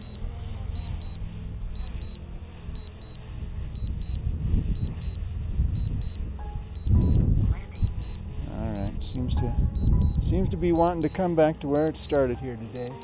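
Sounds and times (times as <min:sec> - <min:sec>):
remote controller beeping: 0:00.0 - 0:00.2, 0:00.8 - 0:01.2, 0:01.8 - 0:02.2, 0:07.8 - 0:13.0
wind rumbling on microphone: 0:00.2 - 0:11.2.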